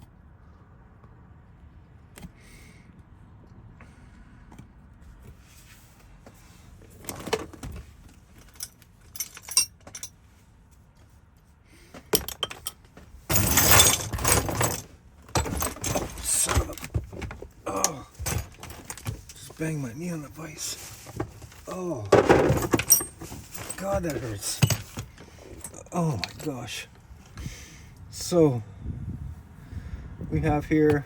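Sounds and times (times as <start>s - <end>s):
keys and metal parts clinking: 8.2s - 10.2s, 12.1s - 27.4s.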